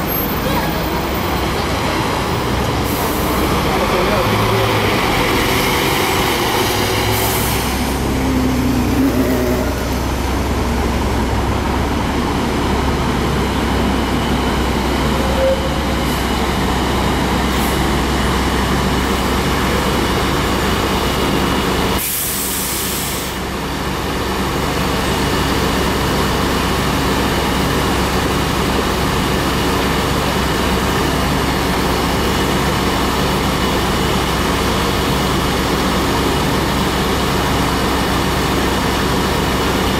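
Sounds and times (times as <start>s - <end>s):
bus engine running: 0.0s - 39.9s
compressed air hiss: 22.0s - 23.4s.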